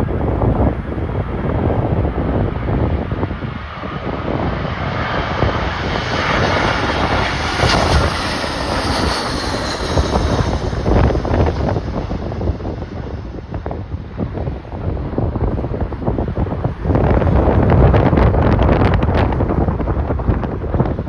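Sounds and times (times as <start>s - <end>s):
jet airliner passing: 0.0s - 21.0s
wind buffeting microphone: 0.0s - 21.0s.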